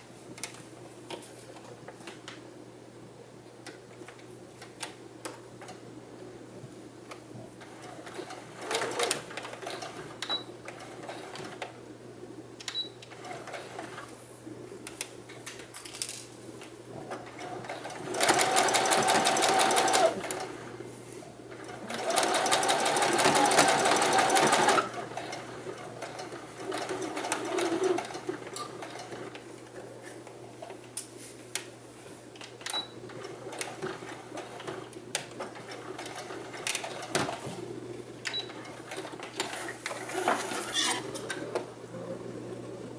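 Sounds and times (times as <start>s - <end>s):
sewing machine stitching: 7.6s - 11.6s, 17.2s - 20.6s, 21.6s - 29.4s.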